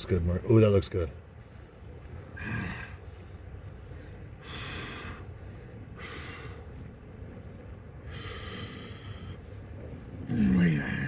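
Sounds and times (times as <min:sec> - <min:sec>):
low rumble: 0:01.1 - 0:11.0
man breathing hard: 0:02.3 - 0:10.1.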